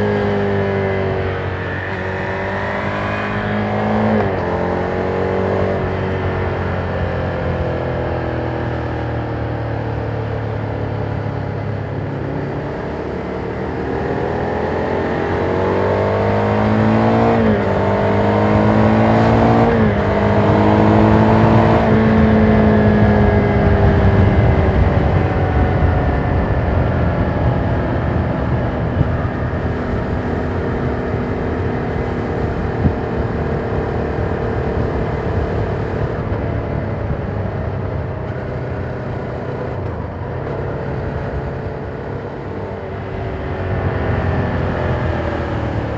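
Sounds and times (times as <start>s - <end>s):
motorcycle engine accelerating: 0.0s - 45.9s
wind rush: 13.4s - 45.9s.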